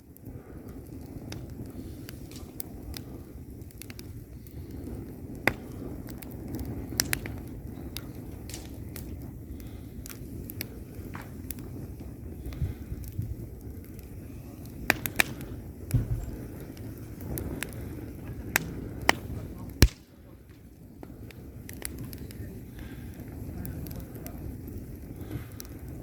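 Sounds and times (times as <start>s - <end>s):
fire flames rumbling: 0.0s - 26.0s
logs crackling and popping: 0.0s - 26.0s.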